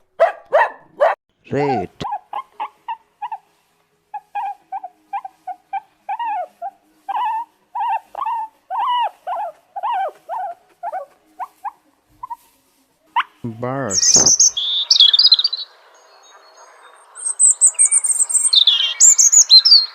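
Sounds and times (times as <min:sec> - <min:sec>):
rat squeaking: 0:02.0 - 0:03.4, 0:04.1 - 0:12.6, 0:13.2 - 0:15.6.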